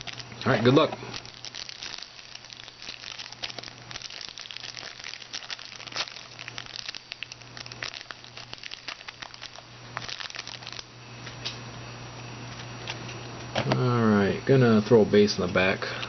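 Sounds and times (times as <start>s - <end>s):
wrapper crinkling and tearing: 0.0s - 10.9s
low electrical hum: 0.0s - 16.0s.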